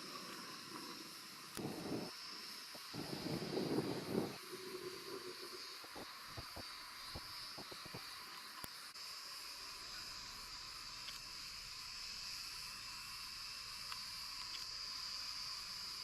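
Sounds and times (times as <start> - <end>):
insects chirring: 0.0 - 16.0
faint clicks: 13.8 - 14.8.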